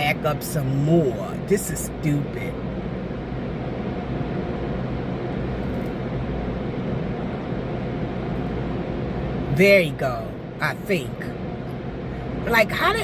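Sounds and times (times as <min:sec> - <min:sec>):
car wash machinery rumble and hiss: 0:00.0 - 0:13.0
faint steady hum: 0:00.0 - 0:13.0.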